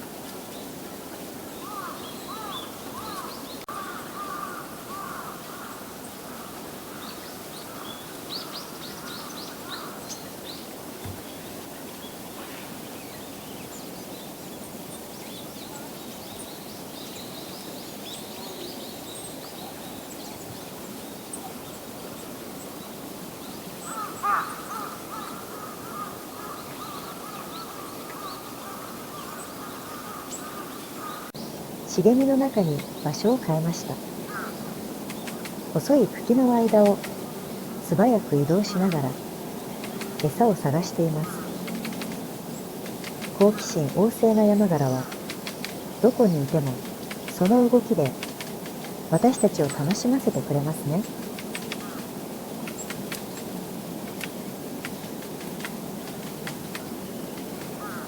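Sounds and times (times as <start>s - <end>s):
outdoor background noise: 0.0s - 58.0s
birds harsh repeated calls: 1.6s - 11.3s, 23.8s - 31.4s, 32.0s - 58.0s.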